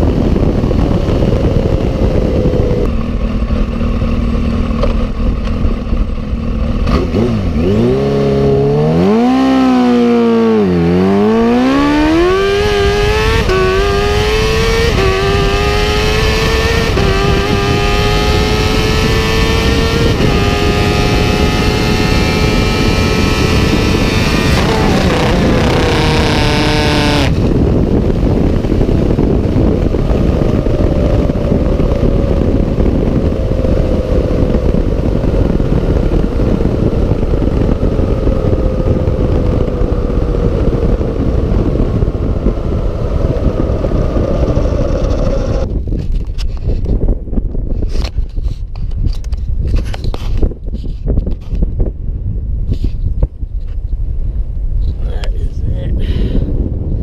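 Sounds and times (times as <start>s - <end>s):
motorcycle engine accelerating hard: 0.0s - 52.0s
wind noise: 0.0s - 57.0s.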